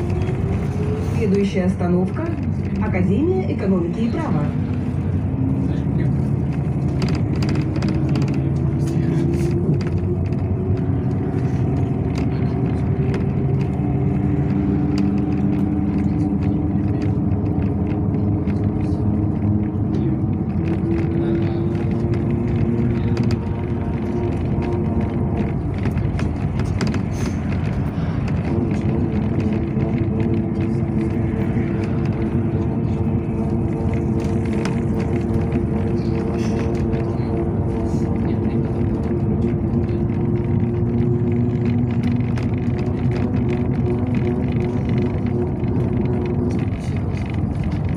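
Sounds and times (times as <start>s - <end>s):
bus engine whine climbing: 0.0s - 47.9s.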